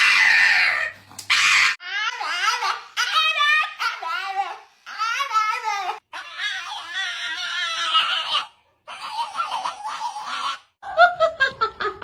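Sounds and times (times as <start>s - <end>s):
people laughing: 10.8s - 12.0s.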